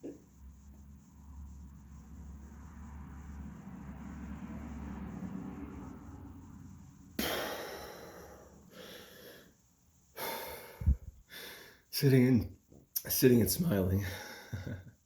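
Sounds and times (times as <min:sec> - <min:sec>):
man breathing heavily: 0:07.2 - 0:11.9, 0:14.0 - 0:14.8.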